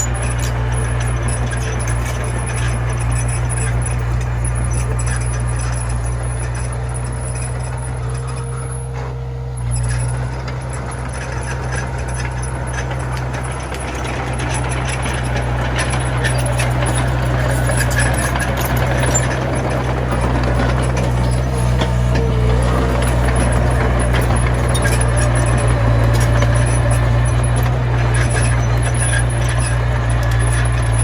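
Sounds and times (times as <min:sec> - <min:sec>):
diesel engine running: 0:00.0 - 0:31.0
low hum: 0:09.6 - 0:31.0
clattering rattling noise: 0:09.7 - 0:31.0.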